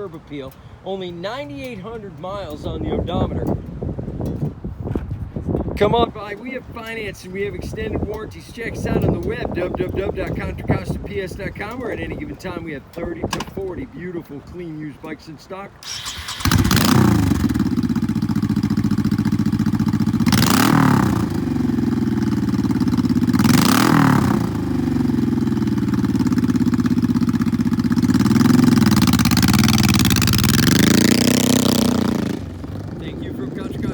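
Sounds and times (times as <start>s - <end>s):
motorcycle throttle blips: 0.0s - 14.6s, 15.8s - 33.9s
motorcycle engine idling: 15.8s - 33.9s.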